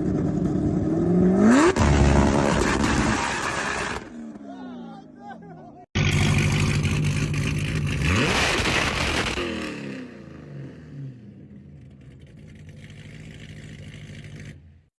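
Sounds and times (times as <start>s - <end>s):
car engine revving then idling: 6.0s - 14.9s.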